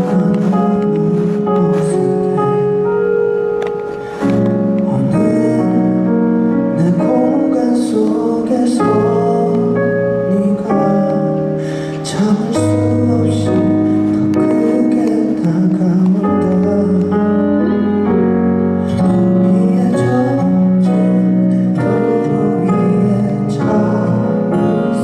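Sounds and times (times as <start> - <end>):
slow live music with sustained chords: 0.0 - 25.0.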